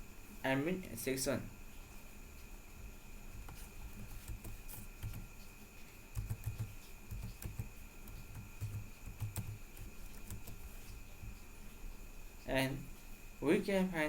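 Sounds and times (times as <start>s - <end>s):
faint high-pitched whine: 0.0s - 14.0s
keyboard and mouse clicks: 6.1s - 10.6s.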